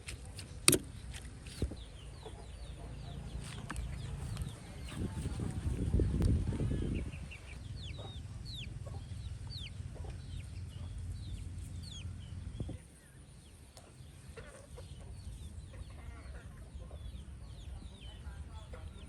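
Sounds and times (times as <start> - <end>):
low steady rumble: 0.0 - 19.0
chickens calling: 6.9 - 12.8, 13.8 - 17.9.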